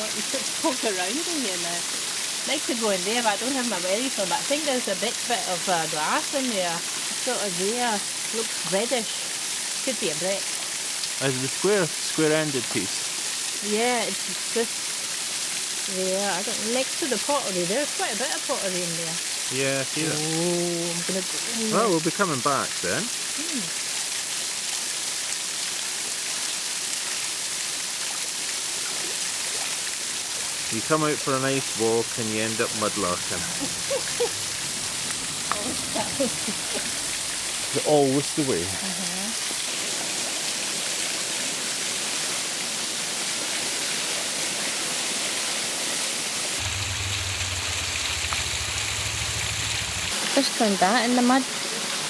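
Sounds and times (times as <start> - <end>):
waterfall rushing: 10.6 - 13.3, 19.3 - 23.7, 28.8 - 42.1, 46.5 - 52.0
low steady hum: 46.6 - 50.1.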